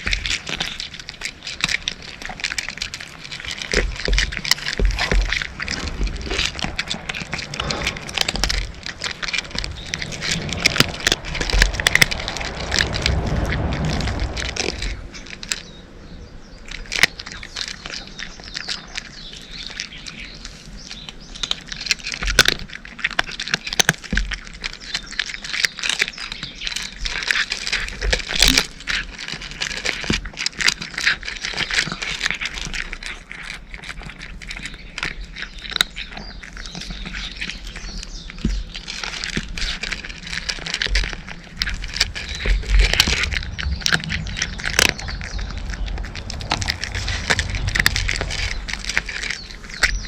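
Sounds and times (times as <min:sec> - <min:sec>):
cat crunching dry kibble: 0:00.0 - 0:50.0.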